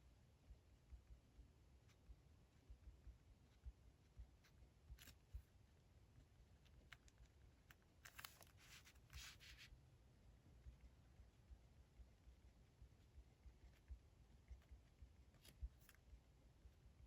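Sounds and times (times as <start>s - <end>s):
paper rustling: 8.0s - 9.7s.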